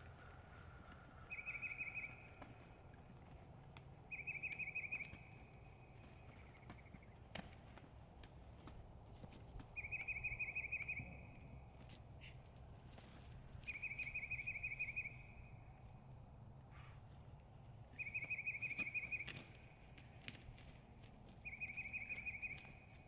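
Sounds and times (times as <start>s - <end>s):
songbird trilling: 1.3s - 2.3s, 4.1s - 5.6s, 9.8s - 11.3s, 13.7s - 15.4s, 17.9s - 19.3s, 21.4s - 22.9s
faint high bird chirps: 1.3s - 2.4s, 4.1s - 6.9s, 9.8s - 12.4s, 13.7s - 15.6s, 17.9s - 19.4s, 21.4s - 23.0s.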